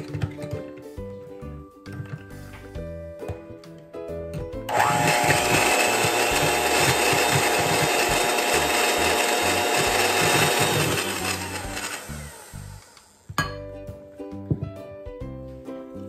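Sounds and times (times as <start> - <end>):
electric mixer motor whine: 4.7 - 13.4.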